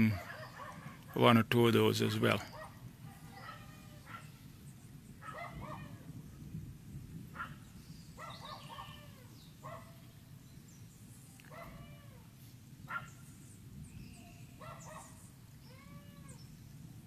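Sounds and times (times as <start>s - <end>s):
dog whining: 3.3s - 4.3s.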